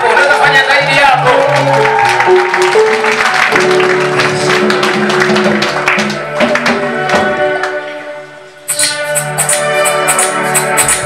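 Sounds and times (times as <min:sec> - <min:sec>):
steady percussion beat: 0:08.7 - 0:11.0.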